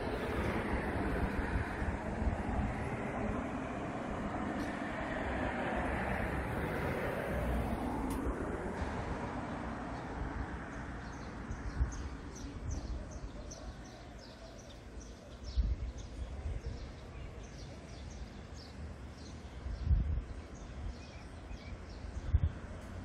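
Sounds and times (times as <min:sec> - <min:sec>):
train rumbling slowly: 0:00.0 - 0:11.5.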